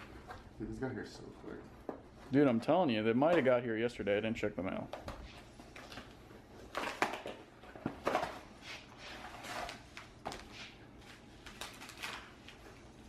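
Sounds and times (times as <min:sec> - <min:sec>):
packaging rustling: 0:05.4 - 0:13.0.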